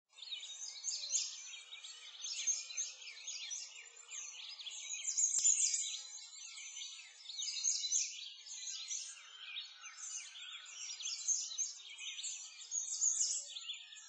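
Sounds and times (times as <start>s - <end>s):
birds chirping and trilling: 0.1s - 14.0s
faint click: 5.3s - 5.6s.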